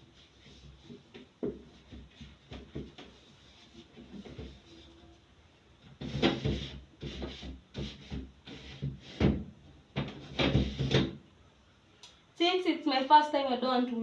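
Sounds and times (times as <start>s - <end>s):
knocks and scrapes of fridge parts: 0.3s - 5.0s, 5.8s - 11.2s.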